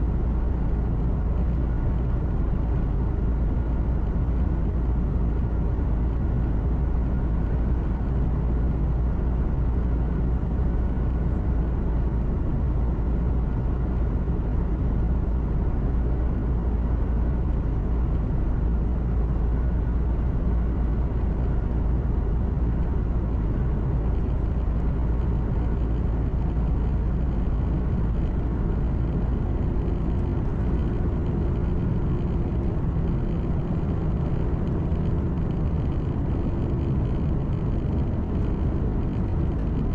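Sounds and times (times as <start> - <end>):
faint hum: 0.0 - 39.9
truck engine and road rumble: 0.0 - 39.9
higher steady hum: 9.2 - 39.9.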